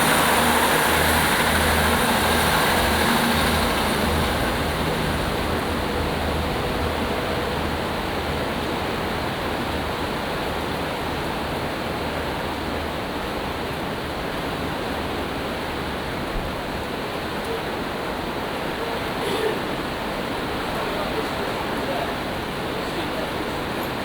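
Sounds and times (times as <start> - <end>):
low hum: 0.0 - 8.6
rough sea surging against wall: 0.0 - 24.0.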